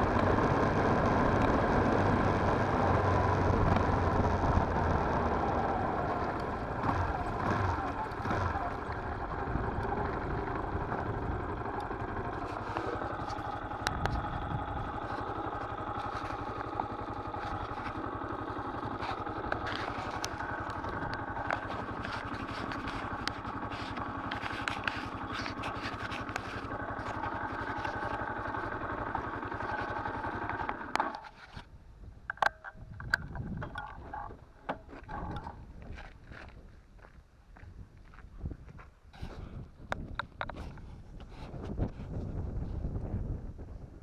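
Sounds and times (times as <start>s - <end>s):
motorcycle engine running: 0.0s - 37.1s
clicks and rattles: 9.8s - 31.7s, 32.3s - 36.0s.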